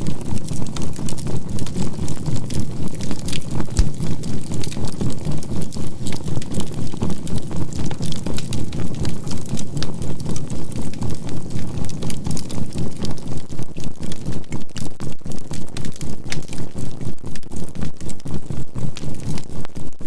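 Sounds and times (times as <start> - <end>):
campfire crackling and popping: 0.2 - 13.2.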